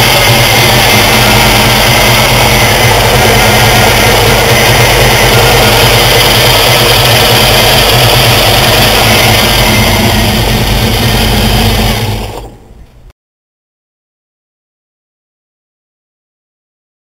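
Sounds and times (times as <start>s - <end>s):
supercharged car engine idling: 0.0s - 13.1s.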